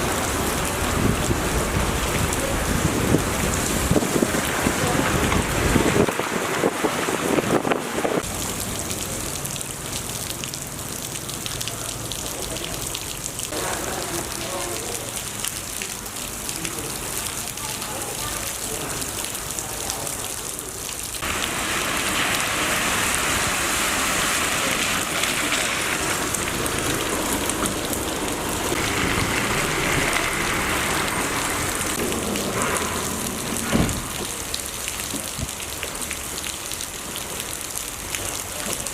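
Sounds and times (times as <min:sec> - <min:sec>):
heavy rain pattering: 0:00.0 - 0:38.9
thump: 0:33.6 - 0:34.3.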